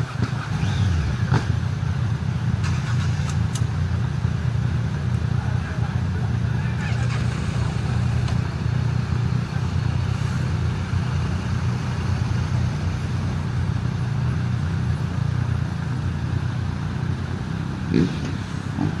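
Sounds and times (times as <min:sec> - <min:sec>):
engine low drone: 0:00.0 - 0:19.0.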